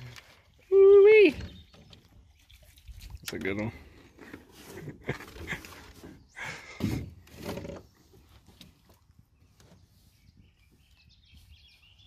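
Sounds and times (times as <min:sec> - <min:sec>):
faint bird chirps: 0:09.3 - 0:12.0.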